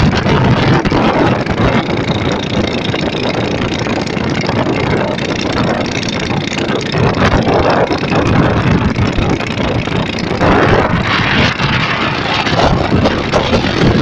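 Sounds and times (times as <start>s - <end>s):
boat motor: 0.0s - 14.0s
storm wind buffeting microphone: 0.0s - 14.0s.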